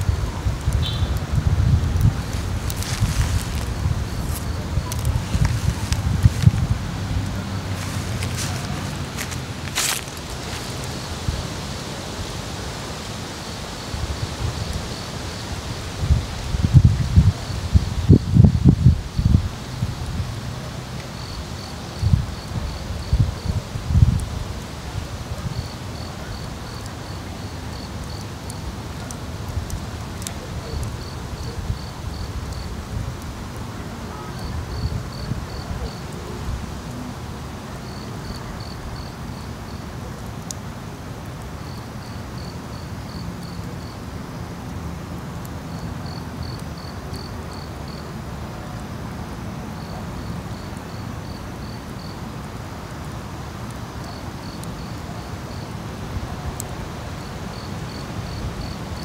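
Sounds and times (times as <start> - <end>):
steady low rumble: 0.0 - 11.6
insect chirping: 0.0 - 11.8, 21.2 - 23.6, 25.5 - 28.7, 37.8 - 39.8, 41.6 - 44.0, 45.7 - 48.0, 49.8 - 52.2, 57.1 - 59.0.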